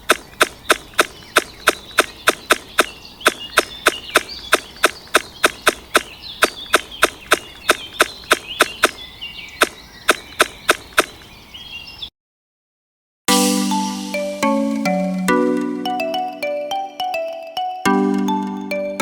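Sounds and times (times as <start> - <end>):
marimba-like music: 13.3 - 19.0.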